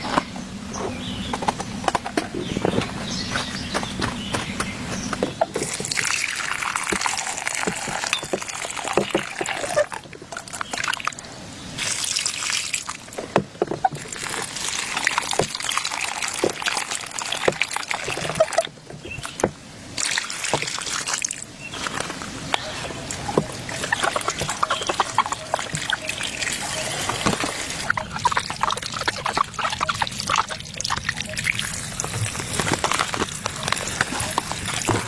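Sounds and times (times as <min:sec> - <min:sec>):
water trickling: 0:00.0 - 0:35.0
rain drops tapping: 0:11.8 - 0:35.0.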